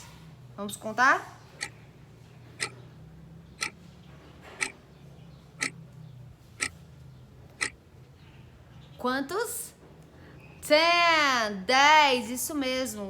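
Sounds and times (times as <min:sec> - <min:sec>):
clock ticking: 0:02.6 - 0:02.8, 0:03.6 - 0:03.8.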